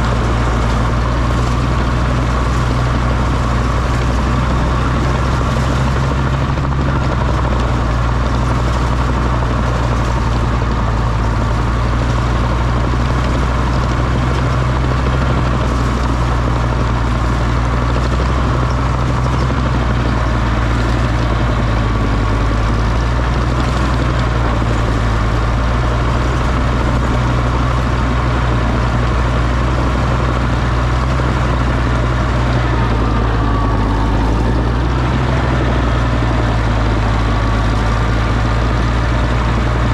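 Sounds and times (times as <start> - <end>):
tractor engine running steadily: 0.0 - 39.9.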